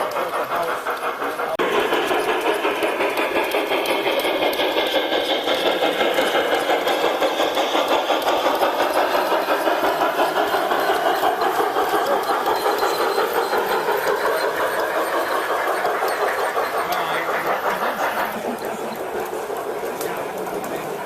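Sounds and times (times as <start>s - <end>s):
model train running on track: 0.0s - 21.0s.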